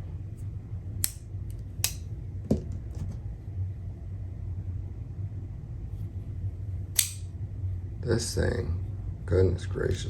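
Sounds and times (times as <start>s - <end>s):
low hum: 0.0s - 10.0s
folding knife clicks: 1.0s - 2.1s, 6.9s - 7.3s.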